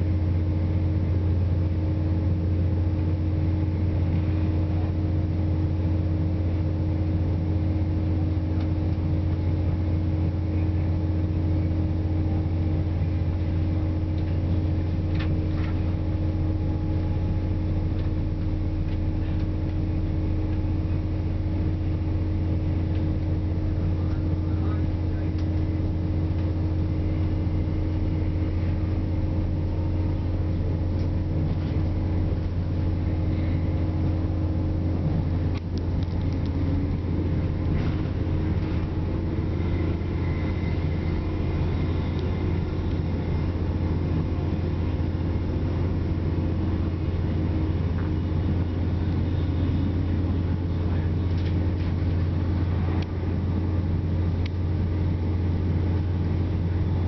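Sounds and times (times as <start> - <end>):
train interior drone: 0.0 - 57.0.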